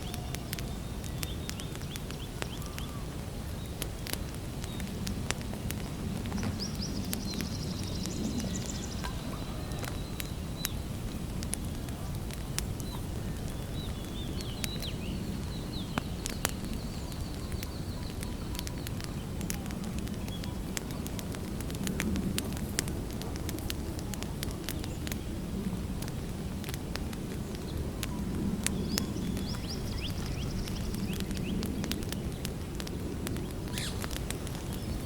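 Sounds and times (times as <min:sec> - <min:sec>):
campfire crackling and popping: 0:00.0 - 0:35.0
faint bird chirping: 0:05.7 - 0:11.1, 0:11.7 - 0:21.3, 0:27.5 - 0:32.1.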